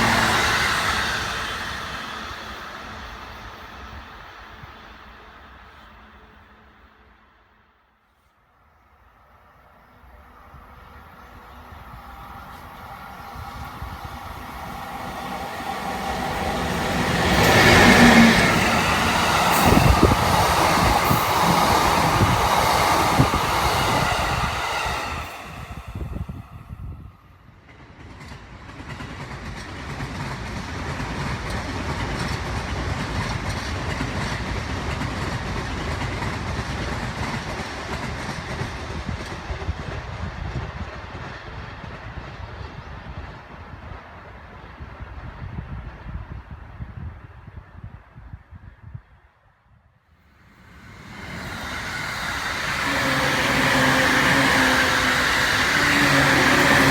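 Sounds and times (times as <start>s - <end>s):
train running rumble: 0.0s - 5.0s, 10.9s - 27.0s, 50.5s - 56.9s
electric train passing: 0.0s - 7.6s, 8.8s - 46.4s, 50.3s - 56.9s.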